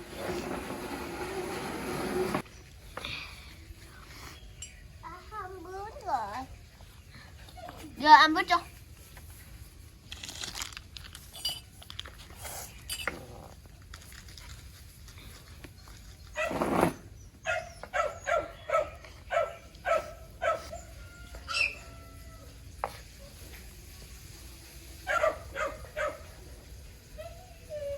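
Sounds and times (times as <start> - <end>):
dog yapping: 17.4 - 20.9, 25.0 - 26.3.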